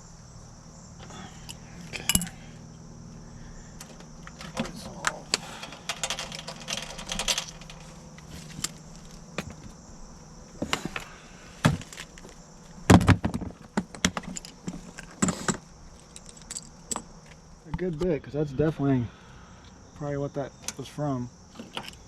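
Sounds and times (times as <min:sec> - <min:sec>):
steady low hum: 0:00.0 - 0:22.0
metallic clinks of hand tools: 0:05.3 - 0:07.9.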